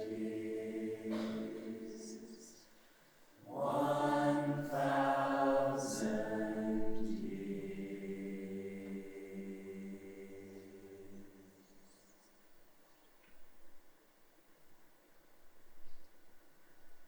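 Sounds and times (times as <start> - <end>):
choir singing sustained chords: 0.0 - 12.3.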